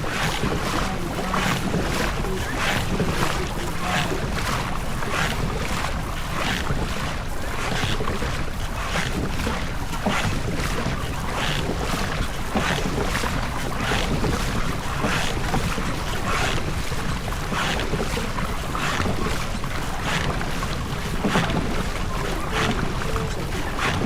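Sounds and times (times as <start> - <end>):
oars swishing in water: 0.0 - 24.0
wind rumble on microphone: 0.0 - 24.0.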